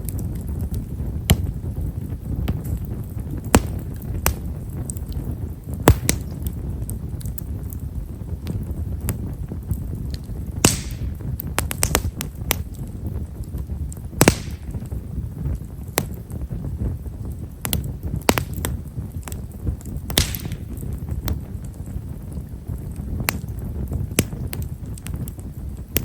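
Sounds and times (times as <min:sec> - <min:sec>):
campfire flame rumble: 0:00.0 - 0:26.0
fire crackling: 0:00.0 - 0:26.0
loud wood pops: 0:03.5 - 0:04.4, 0:05.8 - 0:06.6, 0:10.2 - 0:12.6, 0:14.2 - 0:15.0, 0:17.6 - 0:19.4, 0:20.1 - 0:20.9.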